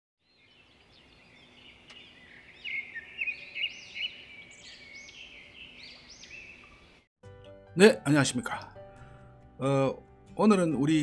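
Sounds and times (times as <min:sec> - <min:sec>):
songbirds chirping and singing: 0:00.2 - 0:07.1.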